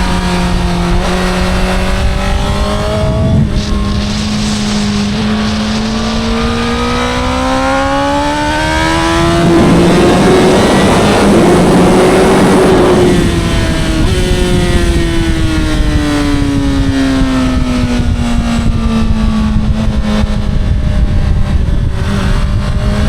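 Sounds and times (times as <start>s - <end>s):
motorcycle engine accelerating: 0.0s - 23.0s
loud rushing noise: 0.6s - 15.8s.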